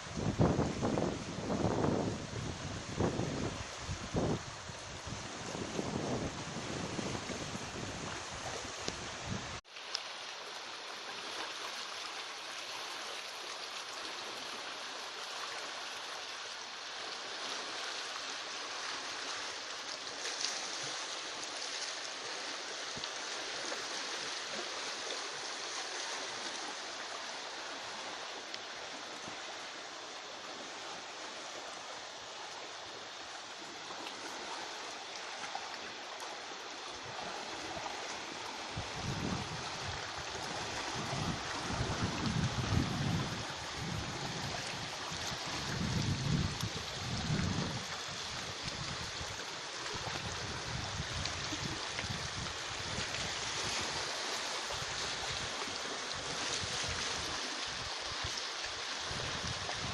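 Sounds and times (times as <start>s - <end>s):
wind rumbling on microphone: 0.0s - 9.6s, 36.8s - 59.9s
running water: 0.0s - 59.9s.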